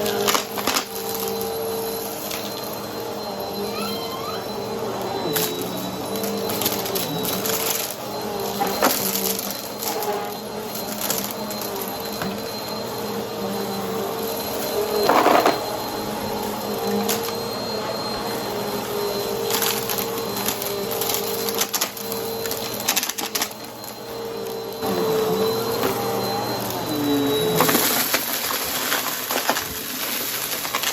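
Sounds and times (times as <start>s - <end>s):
vacuum cleaner humming: 0.0s - 30.9s
debris crackling in vacuum: 27.6s - 30.9s.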